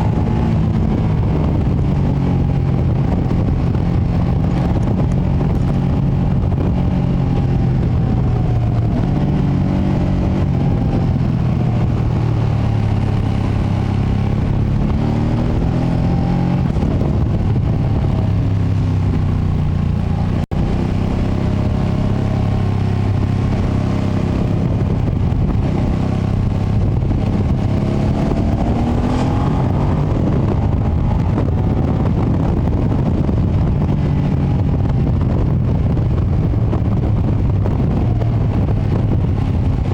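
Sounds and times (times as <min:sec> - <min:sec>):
low wind rumble: 0:00.0 - 0:39.9
motorcycle engine revving: 0:00.0 - 0:39.9.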